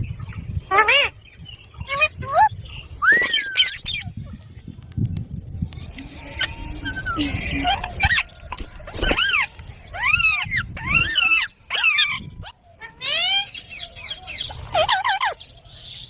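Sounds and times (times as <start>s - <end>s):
parrot screeching calls: 9.0s - 15.4s.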